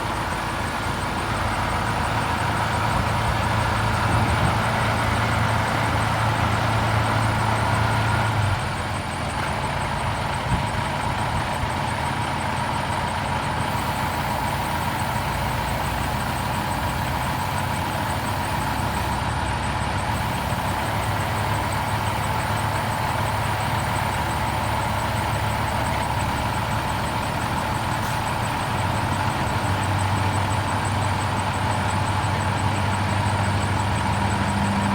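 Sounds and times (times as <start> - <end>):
truck diesel engine idling: 0.0 - 34.9.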